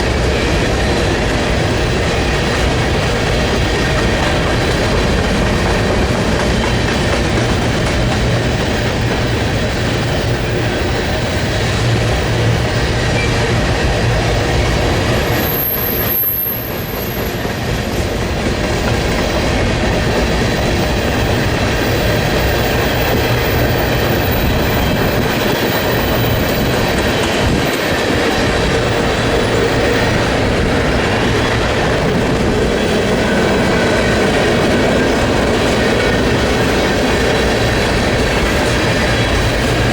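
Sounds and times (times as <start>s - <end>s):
train wheels clicking over rail joints: 0.0s - 39.9s
high wheel squeal: 8.6s - 39.9s.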